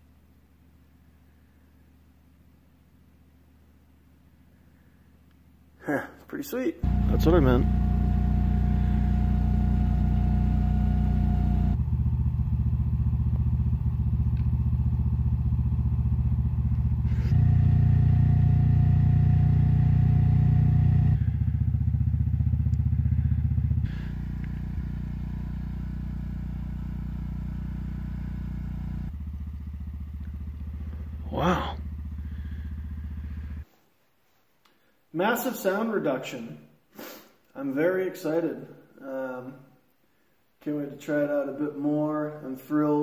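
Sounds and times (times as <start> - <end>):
portable generator engine running: 6.8 - 33.6.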